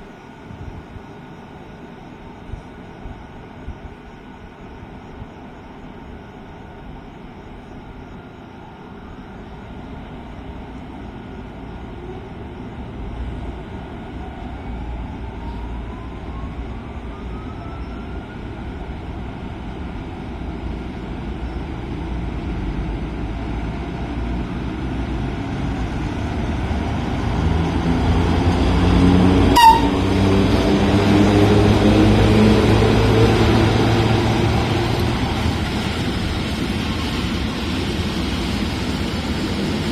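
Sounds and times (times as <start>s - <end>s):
electric locomotive hum: 0.0s - 39.9s.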